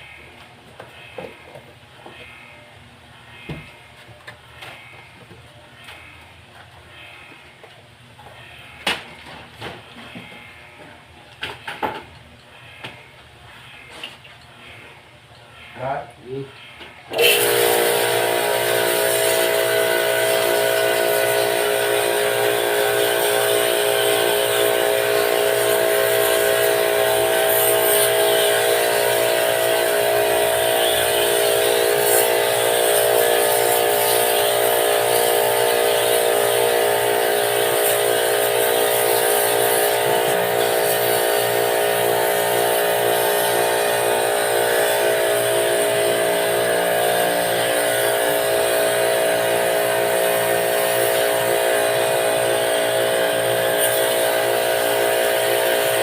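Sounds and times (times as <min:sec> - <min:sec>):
pressure washer pump running: 0:17.1 - 0:56.0.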